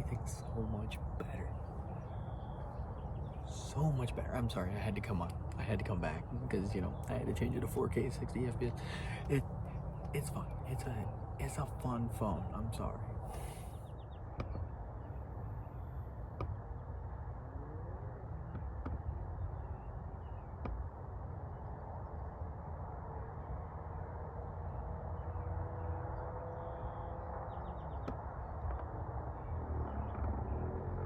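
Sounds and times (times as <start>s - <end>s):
faint bird calls: 0.0s - 16.1s
low rumble and hiss: 0.0s - 27.1s.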